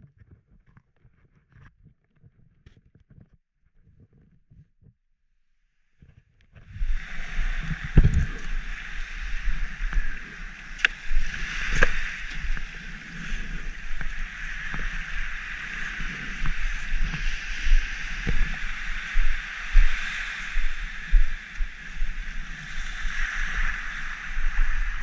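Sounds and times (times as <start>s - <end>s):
muffled surf: 6.6s - 25.0s
wind buffeting rumble: 6.6s - 25.0s.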